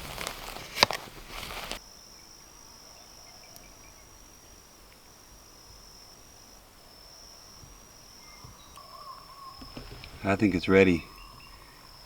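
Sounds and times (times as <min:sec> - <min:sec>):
rustling noise: 0:00.0 - 0:01.8, 0:09.6 - 0:11.0
high-pitched insect trill: 0:01.8 - 0:12.0.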